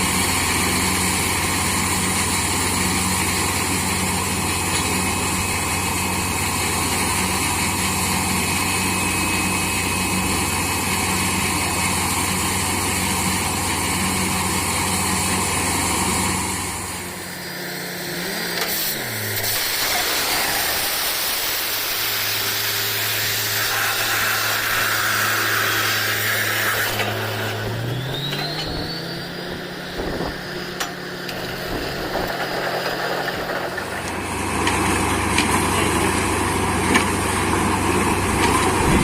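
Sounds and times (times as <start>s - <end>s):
diesel engine running: 0.0s - 39.0s
loud hiss: 18.5s - 28.8s
tone sliding down in pitch: 27.5s - 30.4s.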